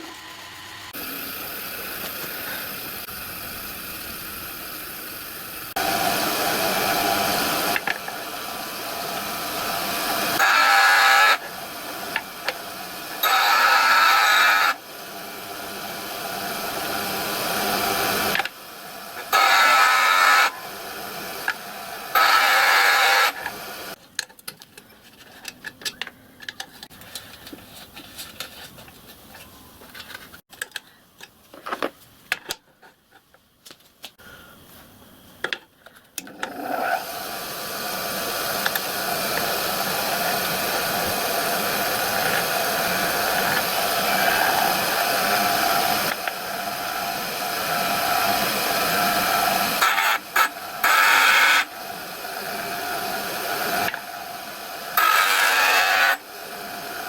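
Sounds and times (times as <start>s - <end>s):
power tool running: 0.0s - 24.0s, 36.4s - 57.0s.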